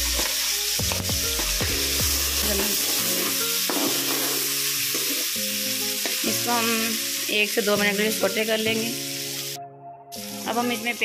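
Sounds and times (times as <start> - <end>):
tomatoes sizzling in hot oil: 0.0 - 11.0
metal spatula scraping a pan: 2.7 - 5.4.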